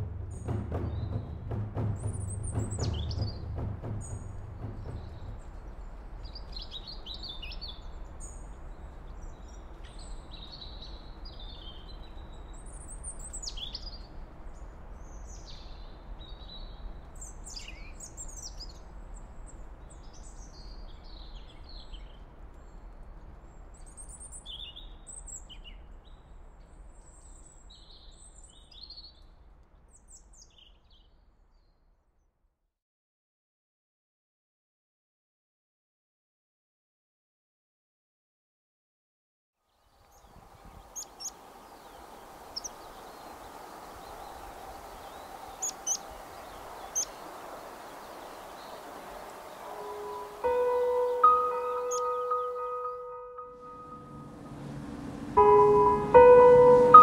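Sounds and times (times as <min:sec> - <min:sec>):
steady low rumble: 0:00.0 - 0:07.3, 0:50.2 - 0:57.0
small birds chirping: 0:00.3 - 0:31.7, 0:39.7 - 0:57.0.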